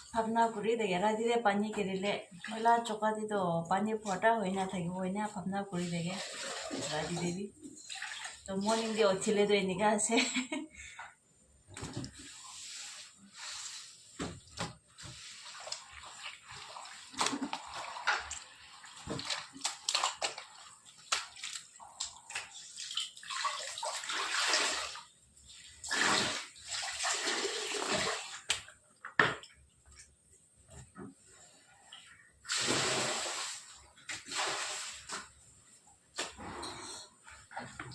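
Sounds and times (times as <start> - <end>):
water splashing and pouring: 5.8 - 9.0, 15.0 - 28.5, 32.5 - 35.3.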